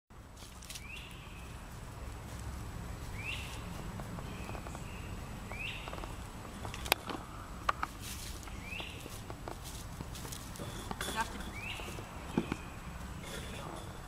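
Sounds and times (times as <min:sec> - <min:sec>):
low steady rumble: 0:00.1 - 0:14.0
squirrel digging in soil: 0:00.2 - 0:14.0
bird rising chirp: 0:03.1 - 0:07.6, 0:08.4 - 0:09.2, 0:10.6 - 0:13.4.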